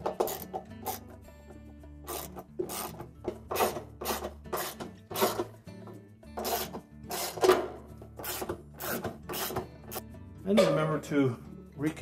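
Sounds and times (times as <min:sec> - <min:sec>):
ratchet strokes: 0:02.1 - 0:03.0, 0:06.4 - 0:07.4.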